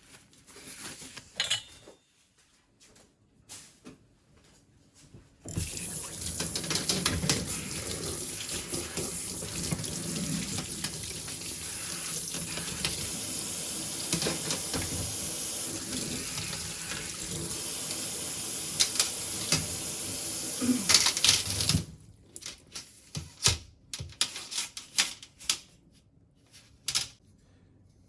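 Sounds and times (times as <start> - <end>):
tap water running into sink: 5.5 - 21.8.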